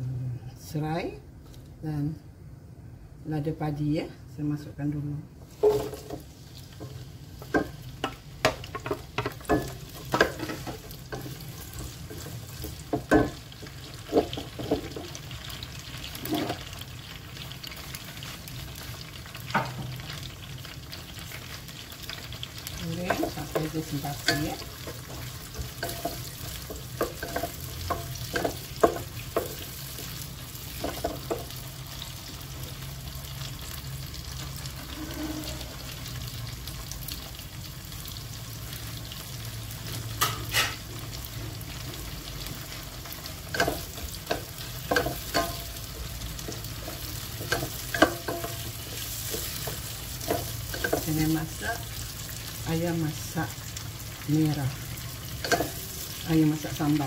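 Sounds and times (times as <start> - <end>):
vegetables sizzling in oil: 4.7 - 57.0
wooden spatula scraping a pot: 34.7 - 36.2, 46.4 - 51.9.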